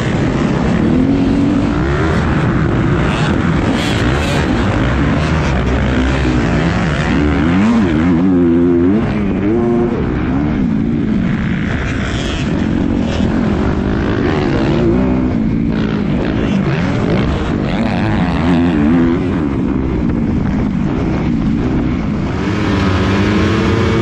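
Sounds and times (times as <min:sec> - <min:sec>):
motocross bike engine revving: 0:00.0 - 0:24.0
steady rush of noise: 0:00.0 - 0:24.0.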